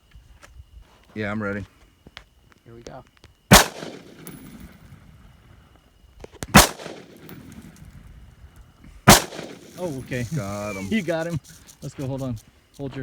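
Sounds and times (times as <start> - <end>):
shotgun shots with echo: 3.5 - 4.7, 6.5 - 7.8, 9.1 - 10.2.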